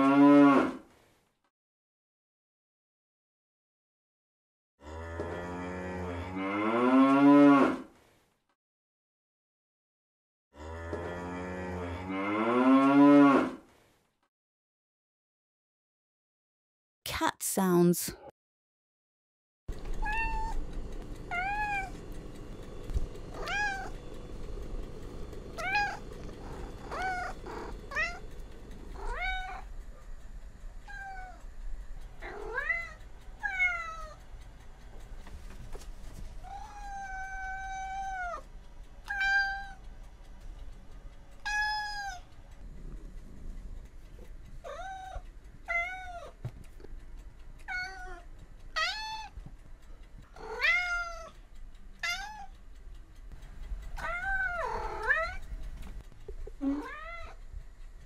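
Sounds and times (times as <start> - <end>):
cat meowing: 20.0 - 20.6, 21.3 - 22.0, 23.4 - 23.9, 25.6 - 28.2, 29.0 - 29.6, 36.5 - 38.4, 41.4 - 42.2, 44.6 - 46.4, 47.7 - 48.2, 48.8 - 49.3, 50.4 - 51.3, 52.0 - 52.5, 54.0 - 55.4, 56.6 - 57.4.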